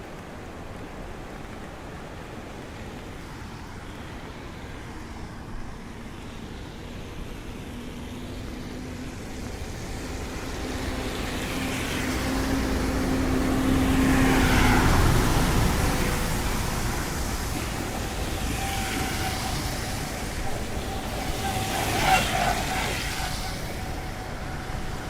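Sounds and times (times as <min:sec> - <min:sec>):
street noise: 0:00.1 - 0:25.0
rain hissing: 0:02.6 - 0:25.0
vehicle approaching: 0:07.9 - 0:25.0.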